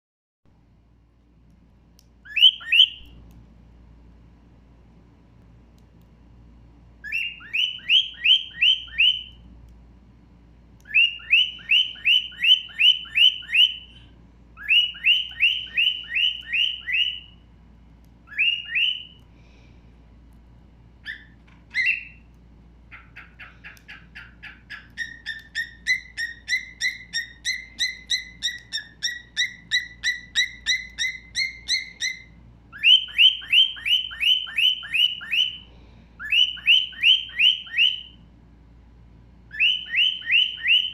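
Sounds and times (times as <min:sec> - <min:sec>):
stone-curlew whistled calls: 0:02.3 - 0:03.1, 0:07.0 - 0:09.4, 0:10.9 - 0:17.4, 0:18.3 - 0:19.2, 0:21.0 - 0:22.2, 0:22.9 - 0:35.6, 0:36.2 - 0:38.1, 0:39.5 - 0:40.9.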